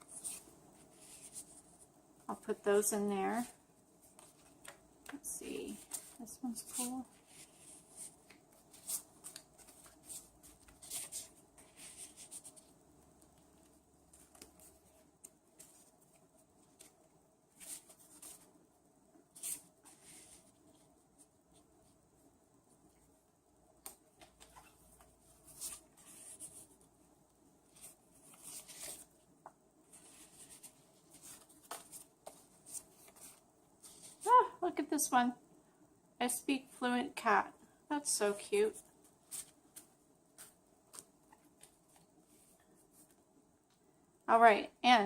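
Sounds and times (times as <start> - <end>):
paper rustling: 5.6 - 12.7, 27.7 - 29.1, 29.9 - 34.3.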